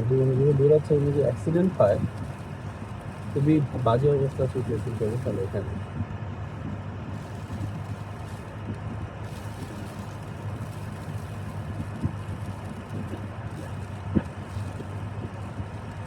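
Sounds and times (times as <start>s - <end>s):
car driving on snowy road: 0.0s - 16.0s.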